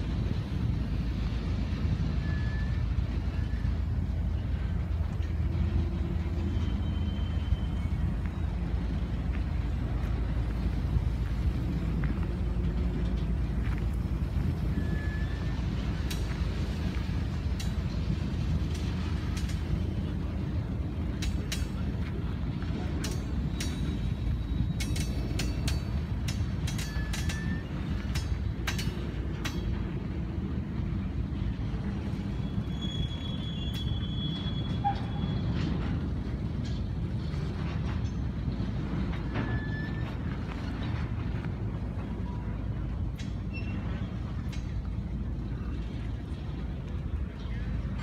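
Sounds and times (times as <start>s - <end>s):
freight train rumbling past: 0.0s - 48.0s
wheels clicking over rail joints: 0.0s - 48.0s
high wheel squeal: 2.0s - 4.5s, 6.0s - 8.8s, 14.5s - 16.1s, 23.2s - 26.0s, 26.7s - 28.0s, 32.2s - 35.9s, 39.2s - 40.4s, 43.5s - 44.3s.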